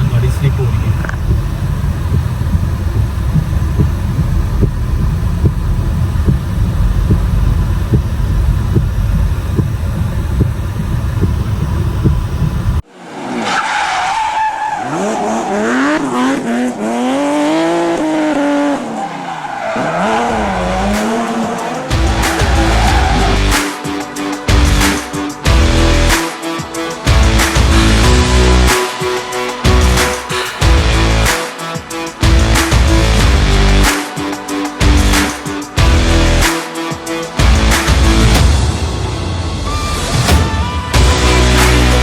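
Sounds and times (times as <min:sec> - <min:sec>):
road and engine rumble: 0:00.0 - 0:31.4, 0:32.0 - 0:42.0
truck engine revving: 0:00.0 - 0:31.5, 0:32.2 - 0:36.6, 0:37.3 - 0:42.0.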